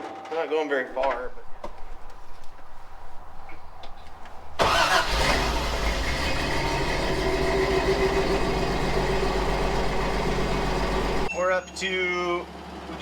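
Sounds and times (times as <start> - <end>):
car engine running: 0.9 - 11.3.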